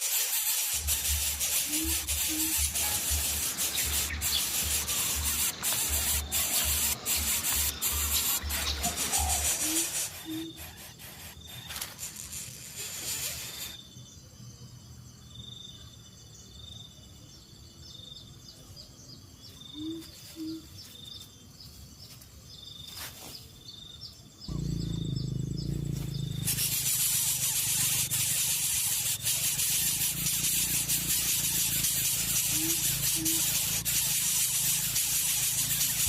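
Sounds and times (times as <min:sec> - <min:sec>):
loud steady hiss: 0:00.0 - 0:13.8, 0:26.2 - 0:36.0
insects trilling: 0:00.0 - 0:36.0
loud low rumble: 0:24.5 - 0:26.5.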